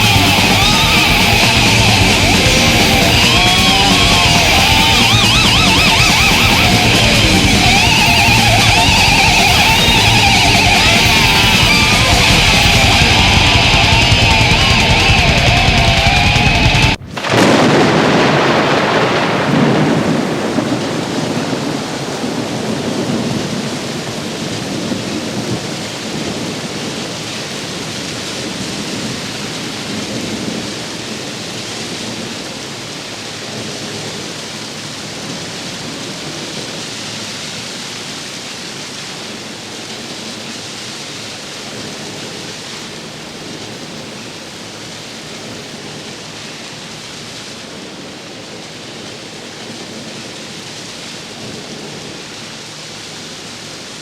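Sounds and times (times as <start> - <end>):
thunder rumble: 0.0 - 37.9
heavy rain: 0.0 - 54.0.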